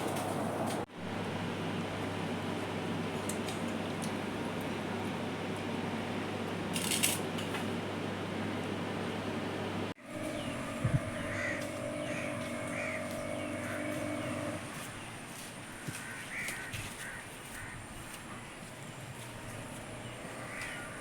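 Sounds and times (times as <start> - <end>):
low mechanical hum: 0.0 - 21.0
short harsh bird calls: 10.2 - 14.5.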